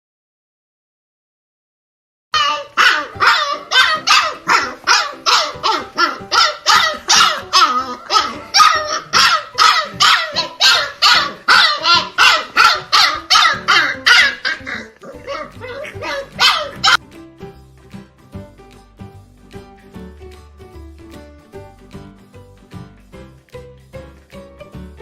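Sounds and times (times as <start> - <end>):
dog barking: 2.4 - 17.0.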